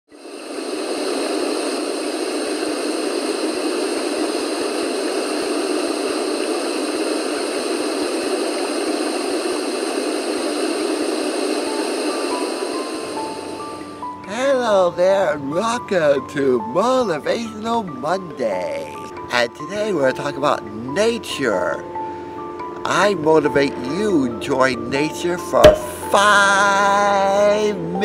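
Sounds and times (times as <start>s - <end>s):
steady rushing noise: 0.1s - 13.9s.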